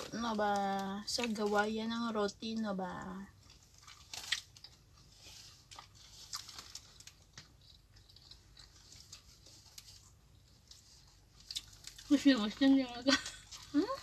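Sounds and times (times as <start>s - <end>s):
people chewing sandwiches: 3.3s - 14.0s
sandwich paper rustling: 3.4s - 14.0s.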